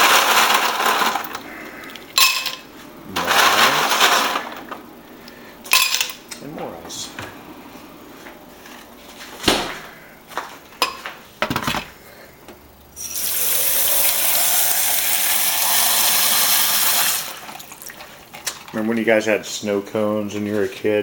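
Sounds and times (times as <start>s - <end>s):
water running from kitchen tap: 13.0s - 18.1s.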